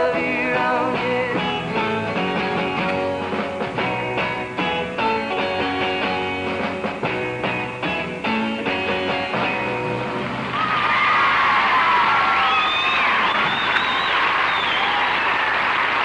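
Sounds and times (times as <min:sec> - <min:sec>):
guitars strumming rock and roll: 0:00.0 - 0:14.1
audience applause and cheering: 0:09.8 - 0:16.0.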